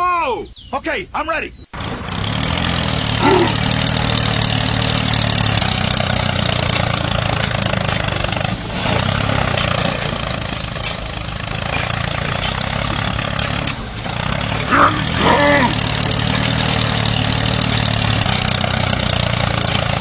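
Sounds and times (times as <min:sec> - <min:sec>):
tractor motor humming: 0:01.7 - 0:20.0.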